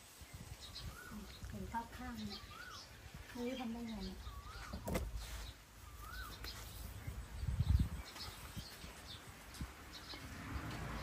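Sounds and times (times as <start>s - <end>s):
faint high bird chirps: 0.3s - 8.9s.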